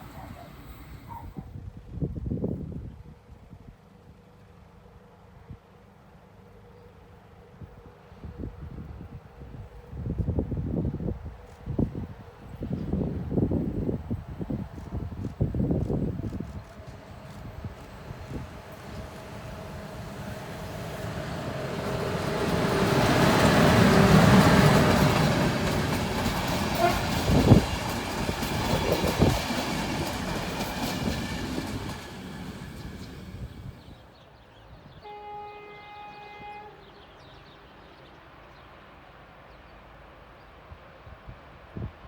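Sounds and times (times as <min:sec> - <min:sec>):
electric train passing: 0:00.0 - 0:01.4, 0:04.5 - 0:34.1
train horn: 0:26.6 - 0:27.6, 0:35.0 - 0:37.3.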